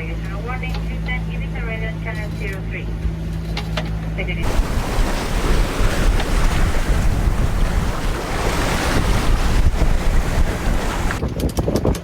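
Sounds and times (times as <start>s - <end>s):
wind buffeting microphone: 4.4s - 12.0s.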